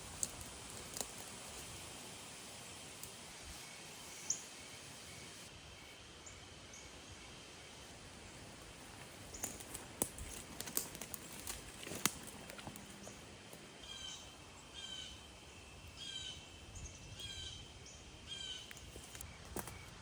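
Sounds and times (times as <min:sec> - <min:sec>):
bird calling: 0:12.1 - 0:15.3.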